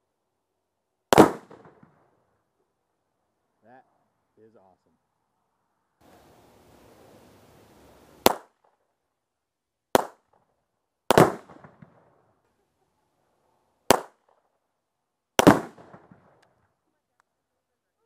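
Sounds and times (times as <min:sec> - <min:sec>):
rifle shots: 0:01.1 - 0:02.0, 0:08.2 - 0:08.6, 0:09.9 - 0:10.3, 0:11.1 - 0:12.1, 0:13.9 - 0:14.3, 0:15.4 - 0:16.4.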